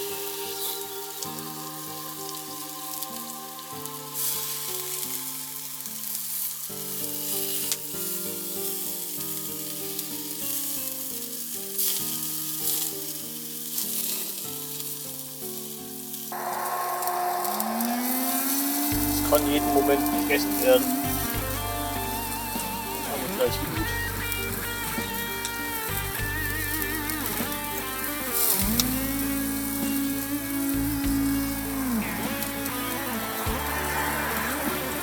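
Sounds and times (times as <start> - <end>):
background music with held notes: 0.0 - 6.9, 16.4 - 35.0
food sizzling over fire: 0.0 - 35.0.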